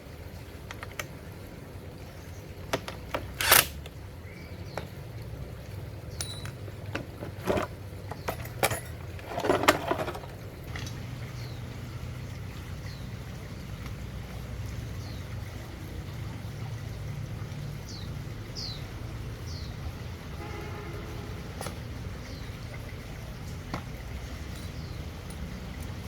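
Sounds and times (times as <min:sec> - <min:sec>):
metal tools clinking: 0:02.9 - 0:03.8, 0:06.1 - 0:10.5, 0:21.6 - 0:21.9, 0:24.3 - 0:26.0
short rattle: 0:06.1 - 0:10.9.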